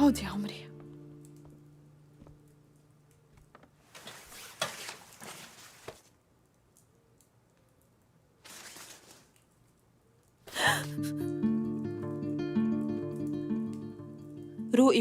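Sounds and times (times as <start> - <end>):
faint rustling and handling: 2.2 - 10.5.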